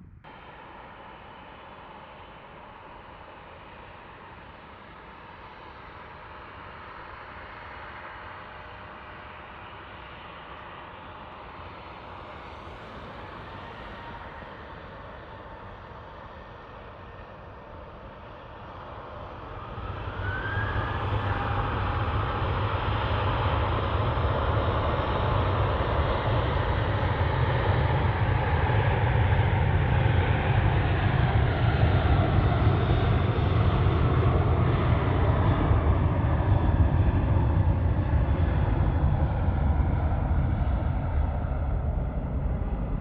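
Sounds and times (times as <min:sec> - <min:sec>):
jet engines rumbling and whining: 0:00.0 - 0:43.0.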